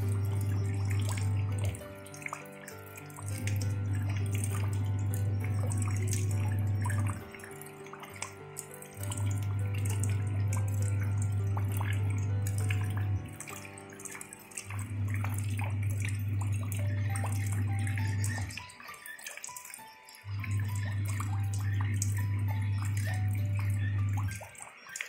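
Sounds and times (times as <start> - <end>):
rain splashing into shallow water: 0.0 - 25.0
soft music: 0.0 - 25.0
deep held bass note: 3.4 - 7.2.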